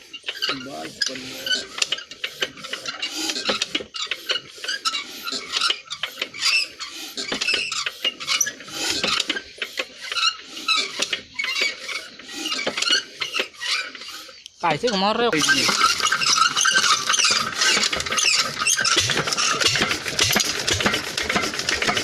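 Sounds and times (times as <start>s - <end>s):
metallic clinking and scraping: 10.1s - 22.0s.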